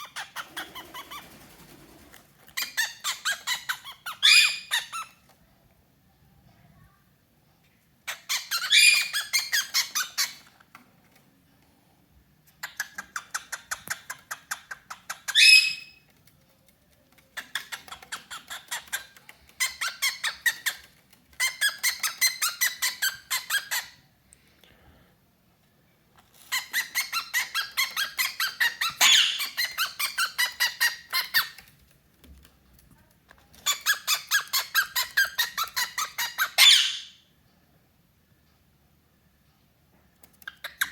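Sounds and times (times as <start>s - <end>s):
cockatiel chattering: 0.0s - 1.4s, 2.6s - 5.2s, 8.1s - 10.4s, 12.6s - 16.1s, 17.3s - 24.0s, 26.4s - 31.7s, 33.6s - 37.1s.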